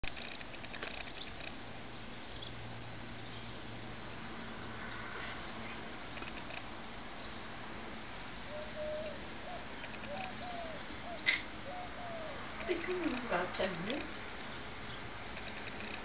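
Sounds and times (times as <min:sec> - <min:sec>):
steady background hiss: 0:00.1 - 0:16.0
high thin bird calls: 0:08.5 - 0:12.8.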